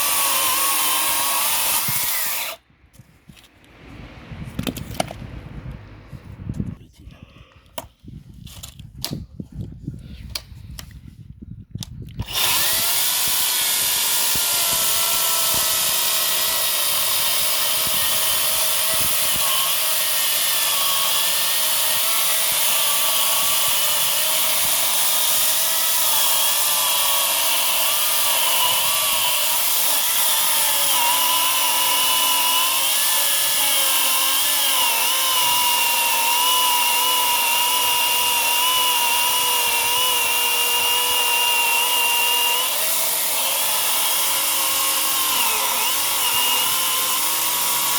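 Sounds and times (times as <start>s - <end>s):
electric chainsaw whining: 0.0s - 2.6s, 12.2s - 47.9s.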